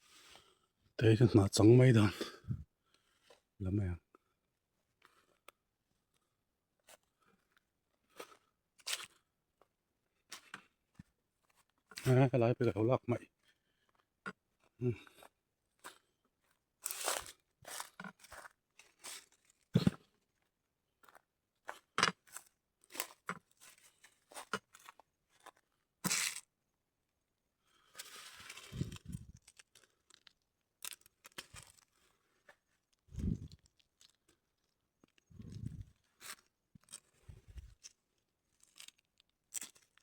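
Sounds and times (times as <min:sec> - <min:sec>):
dry plants crunching: 0:16.8 - 0:19.6, 0:28.1 - 0:32.0, 0:38.6 - 0:40.0.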